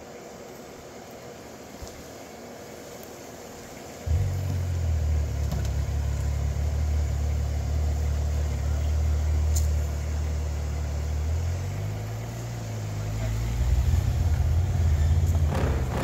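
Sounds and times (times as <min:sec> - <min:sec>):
off-road vehicle engine rumbling: 0:04.0 - 0:16.0.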